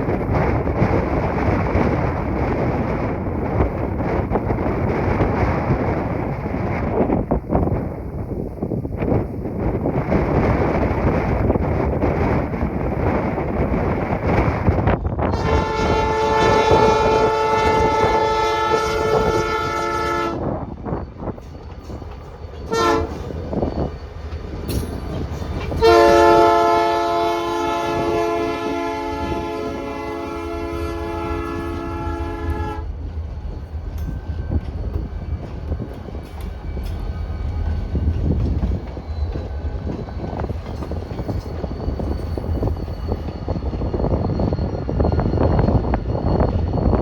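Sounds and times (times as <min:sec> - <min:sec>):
locomotives rumbling past: 0:00.0 - 0:47.0
wind on microphone: 0:00.0 - 0:47.0
locomotive air horn blasts: 0:15.3 - 0:20.5, 0:22.7 - 0:23.2, 0:25.8 - 0:32.9.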